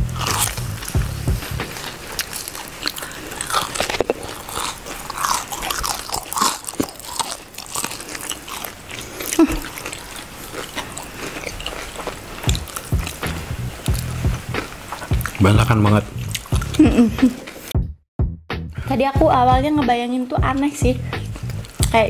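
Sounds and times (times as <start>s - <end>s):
crispy food biting and chewing: 0.0s - 15.5s, 21.3s - 21.9s.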